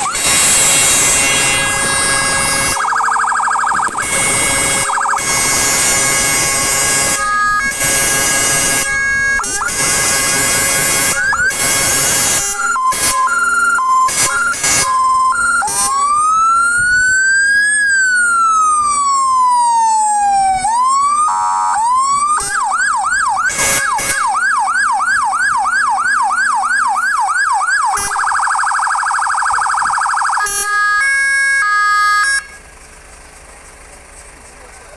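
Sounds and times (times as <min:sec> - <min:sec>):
short loud horn blasts: 0:00.0 - 0:02.8, 0:04.0 - 0:16.0, 0:21.2 - 0:22.6, 0:23.5 - 0:24.4, 0:30.4 - 0:32.7
fire engine electronic siren: 0:00.0 - 0:32.8.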